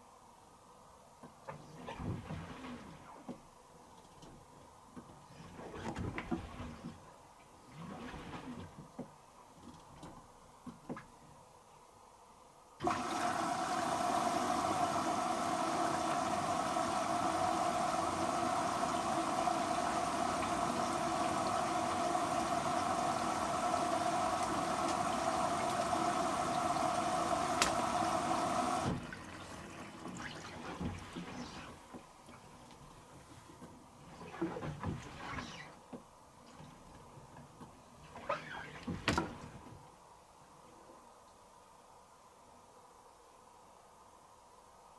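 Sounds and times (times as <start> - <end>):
water rushing into washing machine: 7.7 - 8.8, 12.8 - 32.3.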